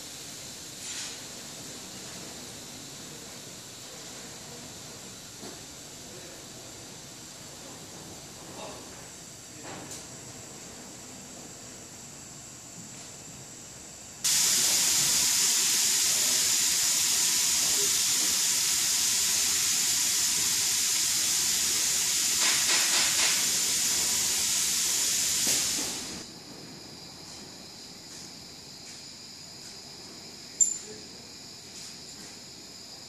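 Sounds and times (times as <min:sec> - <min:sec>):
cleaning machine hissing: 0:14.2 - 0:26.3.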